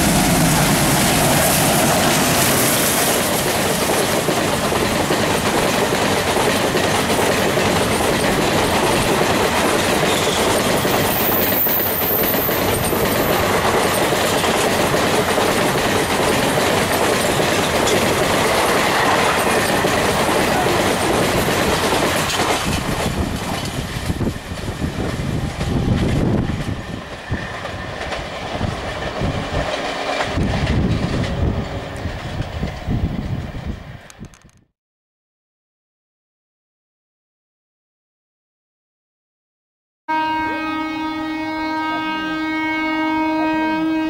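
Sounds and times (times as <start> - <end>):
train wheels clattering on rails: 0.0 - 34.2.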